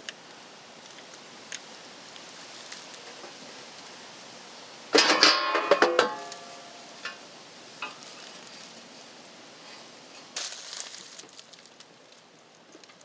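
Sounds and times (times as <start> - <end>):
metal clattering: 5.0 - 7.2.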